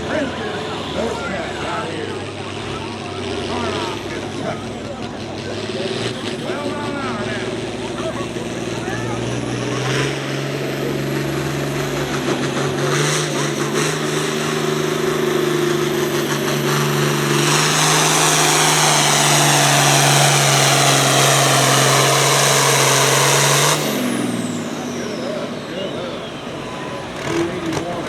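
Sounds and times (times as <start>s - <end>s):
engine at full throttle: 0.0s - 28.0s
loud rush of noise: 5.5s - 28.0s
falling high whine: 13.9s - 28.0s.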